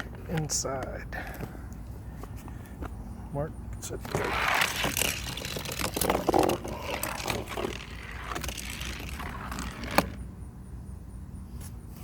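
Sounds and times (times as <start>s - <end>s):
toy cars rattling down plastic track: 4.1s - 10.2s.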